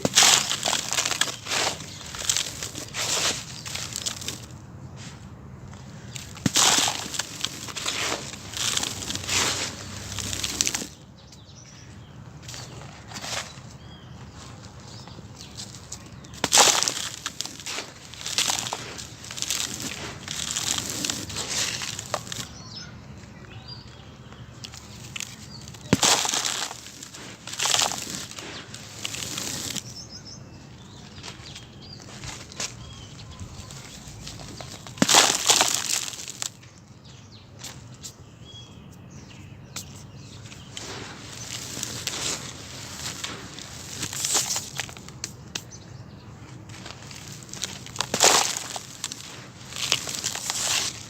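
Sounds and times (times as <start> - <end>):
sand-cement chunks crumbling: 0.0 - 38.2, 39.7 - 45.8, 46.4 - 51.0.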